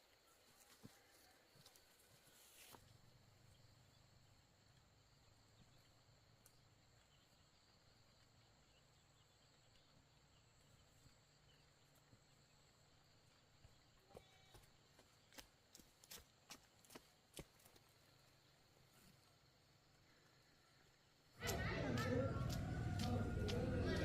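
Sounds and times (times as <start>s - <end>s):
low hum: 21.4s - 24.0s.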